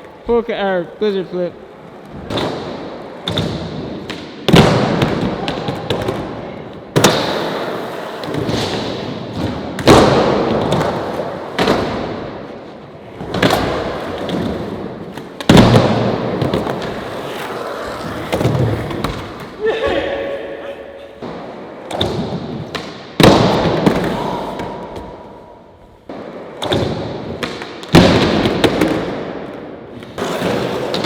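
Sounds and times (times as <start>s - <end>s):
skateboard impacts: 1.8s - 20.2s, 21.2s - 25.4s, 26.0s - 31.0s
skateboard wheels rolling: 4.9s - 19.6s, 28.2s - 31.0s.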